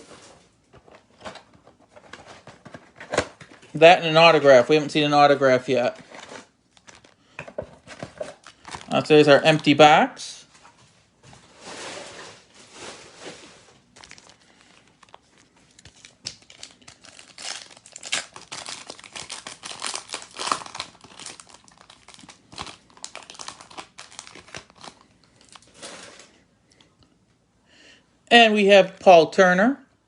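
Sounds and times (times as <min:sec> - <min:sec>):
wrapper tearing and crinkling: 0:06.0 - 0:07.2, 0:07.9 - 0:09.8, 0:13.9 - 0:26.2.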